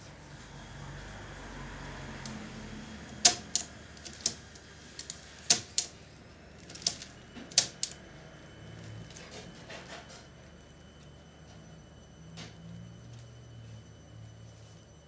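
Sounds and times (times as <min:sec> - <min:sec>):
tape mechanism parts clicking: 0:03.1 - 0:06.0, 0:06.6 - 0:08.0.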